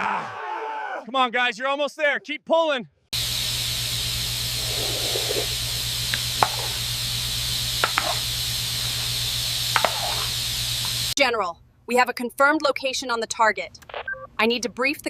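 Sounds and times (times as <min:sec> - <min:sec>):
loud steady hiss: 0:03.2 - 0:11.2
low hum: 0:03.2 - 0:11.2.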